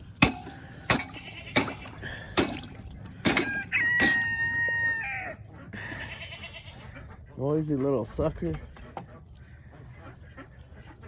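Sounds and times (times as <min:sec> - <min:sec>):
rooster crowing: 0:03.4 - 0:05.4.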